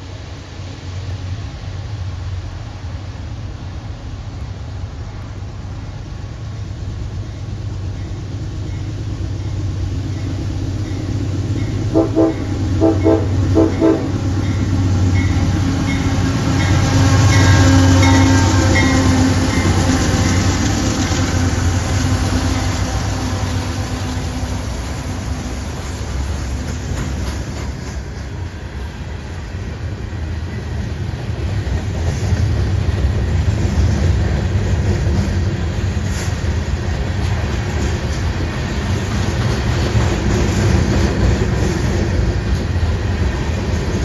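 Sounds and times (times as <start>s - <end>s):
train passing with rumble: 0.0s - 44.0s
locomotive horn blasts: 11.8s - 14.8s.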